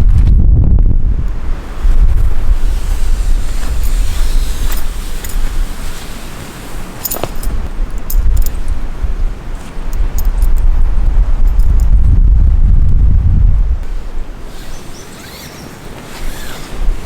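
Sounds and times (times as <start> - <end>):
wind buffeting microphone: 0.0 - 17.0
clicks and rattles of gear: 3.4 - 8.8, 9.6 - 10.8, 11.4 - 12.1.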